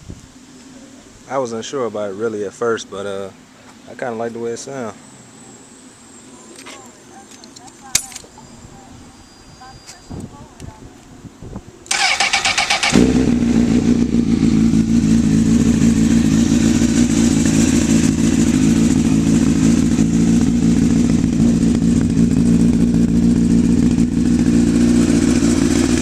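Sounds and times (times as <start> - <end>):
motorcycle engine idling: 11.9 - 26.0.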